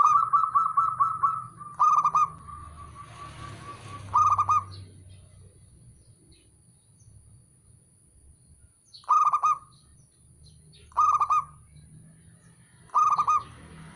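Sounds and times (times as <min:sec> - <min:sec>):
dove cooing: 0:00.0 - 0:04.8, 0:09.1 - 0:09.7, 0:10.9 - 0:11.6, 0:12.9 - 0:13.6.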